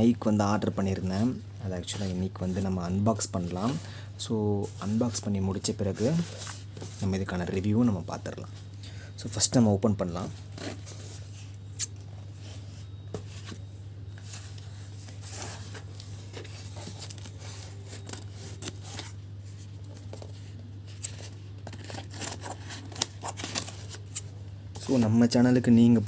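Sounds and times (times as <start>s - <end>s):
steady low hum: 0.0s - 26.0s
packaging rustling and tearing: 14.3s - 24.4s.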